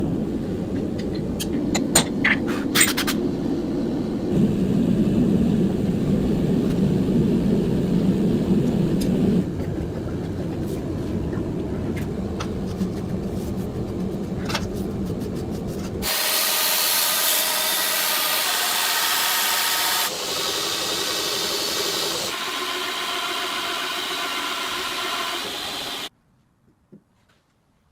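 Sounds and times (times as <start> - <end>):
low machine rumble: 3.2 - 16.0
hissing rasping grinding: 16.0 - 26.1.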